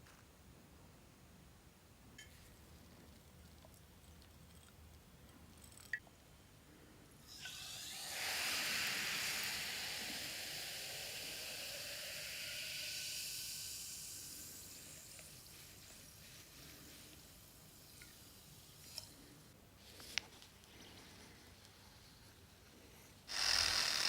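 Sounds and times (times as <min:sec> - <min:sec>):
compressed air hiss: 0:07.3 - 0:18.0.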